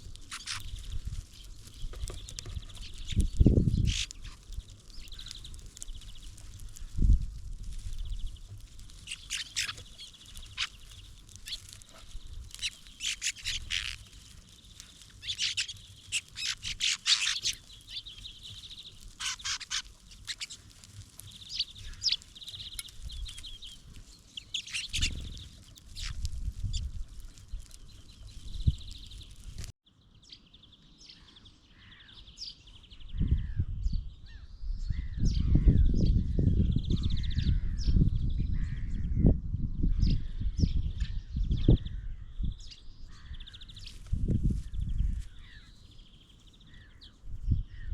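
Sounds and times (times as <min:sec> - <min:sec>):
songbirds chirping: 0:00.0 - 0:39.3, 0:39.9 - 0:47.9
rapid bird trill: 0:09.0 - 0:26.9.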